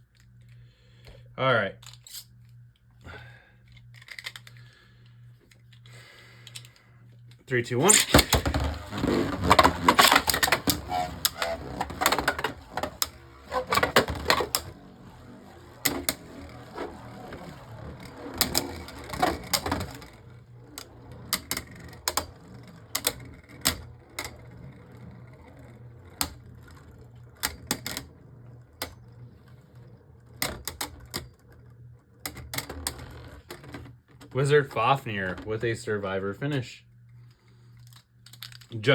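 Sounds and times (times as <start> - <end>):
spinning tops clacking: 7.8 - 24.7.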